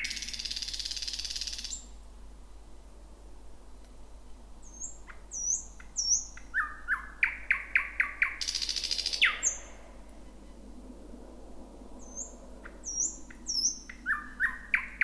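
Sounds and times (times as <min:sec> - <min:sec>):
nightingale singing: 0:00.0 - 0:01.9, 0:04.6 - 0:10.6, 0:12.0 - 0:15.0.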